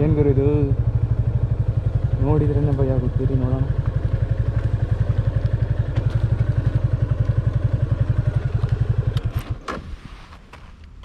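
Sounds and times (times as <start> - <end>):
motorcycle engine idling: 0.0 - 9.6
engine clicks and knocks: 2.1 - 9.8.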